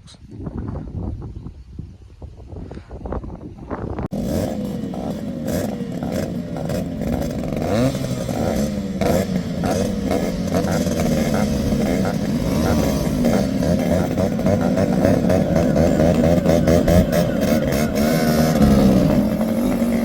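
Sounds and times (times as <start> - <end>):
motorcycles revving: 4.0 - 20.0.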